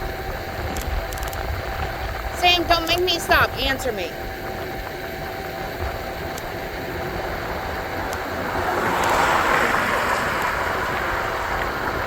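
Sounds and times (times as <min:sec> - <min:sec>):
wind rumble on microphone: 0:00.0 - 0:12.0
passing car tyre noise: 0:04.2 - 0:12.0.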